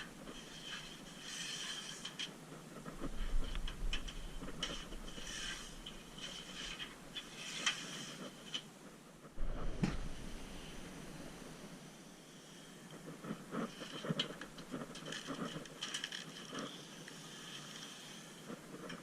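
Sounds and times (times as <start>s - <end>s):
thump: 9.4s - 10.1s.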